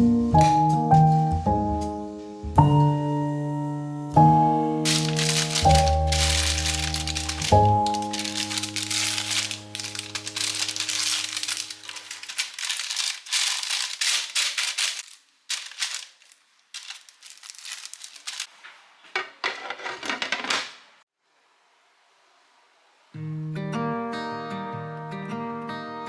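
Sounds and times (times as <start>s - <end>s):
background music: 0.0s - 12.4s
crinkling and crackling: 4.8s - 18.9s.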